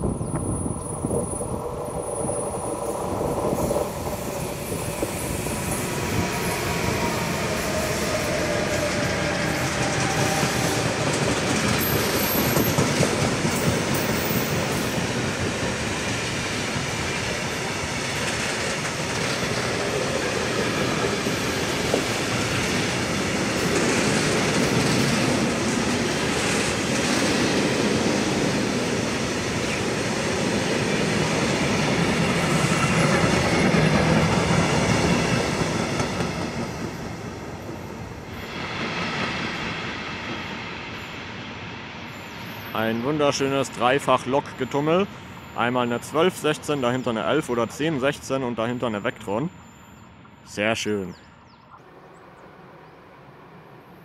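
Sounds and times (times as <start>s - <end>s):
steel wheels rolling on rails: 0.0s - 40.9s.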